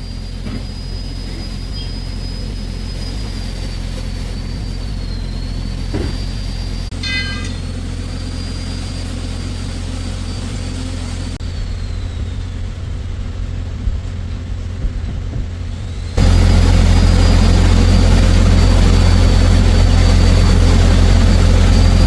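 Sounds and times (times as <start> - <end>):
excavator engine running: 0.0 - 22.0
brief high ringing tone: 6.9 - 8.3.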